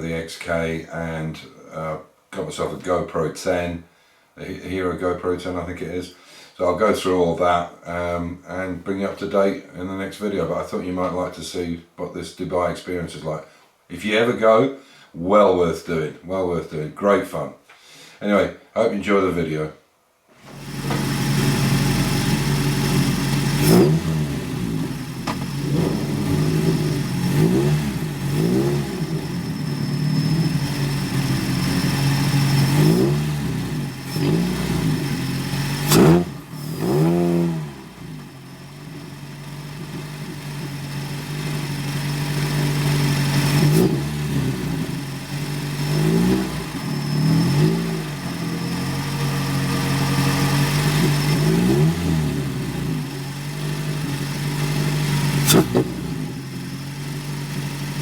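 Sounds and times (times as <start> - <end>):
race car engine revving through gears: 20.4 - 58.0.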